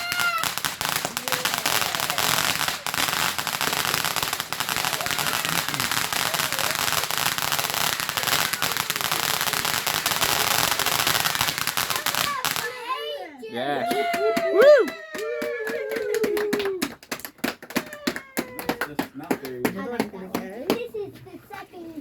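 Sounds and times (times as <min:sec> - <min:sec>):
firework crackling: 0:00.0 - 0:12.9.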